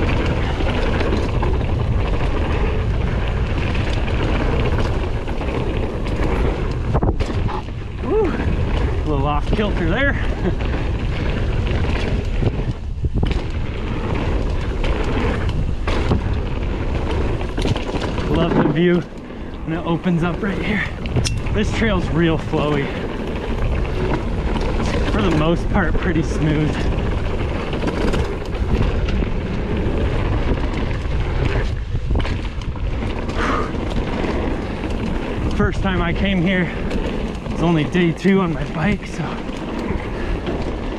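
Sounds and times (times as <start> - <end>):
bike rattling: 0.0 - 40.9
tyre noise on dirt: 0.0 - 40.9
wind rushing on microphone: 0.0 - 40.9
small knocks from bike: 11.8 - 13.6.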